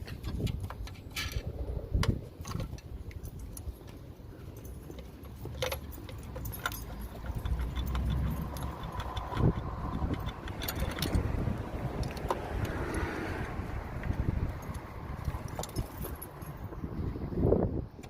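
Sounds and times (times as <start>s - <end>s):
metal tools clinking: 2.4s - 13.0s, 14.4s - 16.7s.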